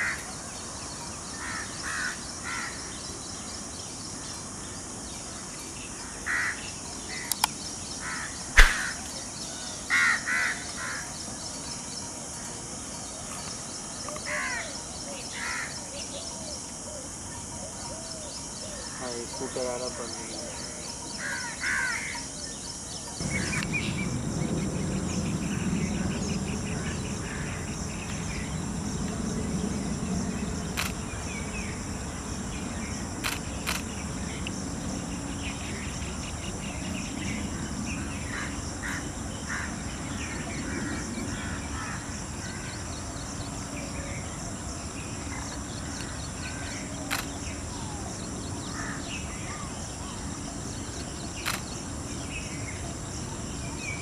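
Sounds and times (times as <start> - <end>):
sharp clicks: 7.3 - 7.5, 8.6 - 9.0, 30.8 - 31.0, 33.2 - 33.9, 47.1 - 47.4, 51.4 - 51.8
small birds chirping: 8.5 - 9.3, 23.1 - 37.9
high-pitched whine: 23.2 - 32.8
steady low rumble: 23.2 - 36.3.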